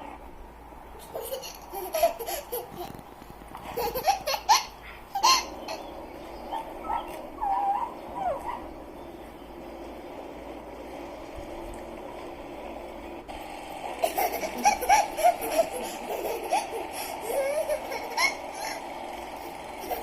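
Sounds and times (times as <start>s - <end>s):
child laughing and squealing: 1.0s - 3.0s, 3.7s - 5.8s, 6.5s - 8.6s, 14.0s - 20.0s.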